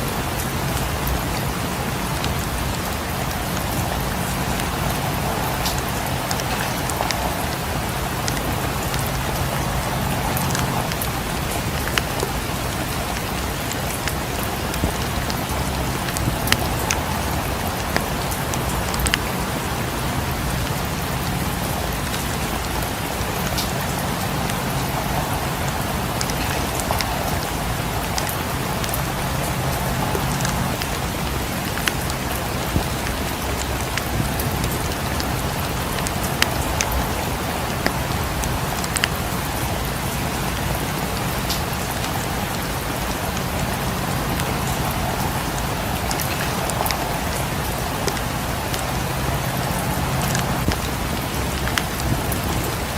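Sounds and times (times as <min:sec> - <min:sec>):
steady rain hiss: 0:00.0 - 0:52.9
sharp ticks and pops: 0:13.1 - 0:19.4, 0:38.8 - 0:39.2.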